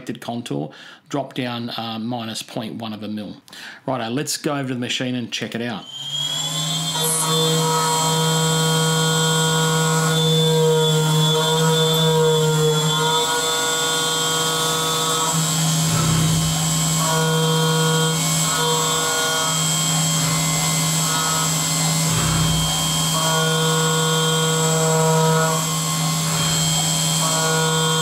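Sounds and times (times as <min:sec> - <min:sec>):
milling machine spindle humming: 0:05.8 - 0:28.0.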